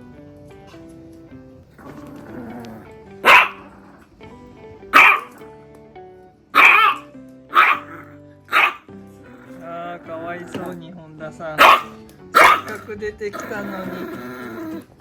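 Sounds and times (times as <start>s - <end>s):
background music: 0.0s - 15.0s
small dog barking: 1.8s - 4.0s, 4.9s - 5.4s, 6.6s - 10.7s, 11.6s - 14.8s.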